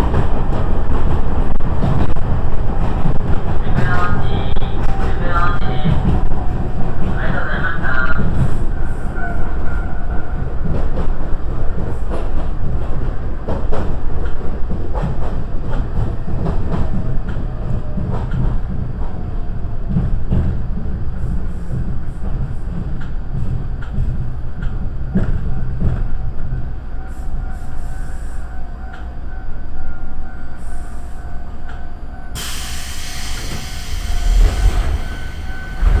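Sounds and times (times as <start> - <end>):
train rumbling on rails: 0.0 - 36.0
hissing noise: 32.4 - 36.0.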